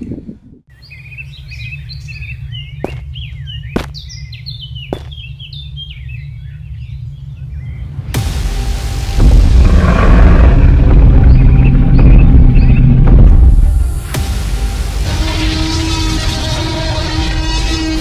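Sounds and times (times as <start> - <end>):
small birds chirping: 0.7 - 8.0, 11.2 - 13.0
loud low rumbling: 4.7 - 17.4.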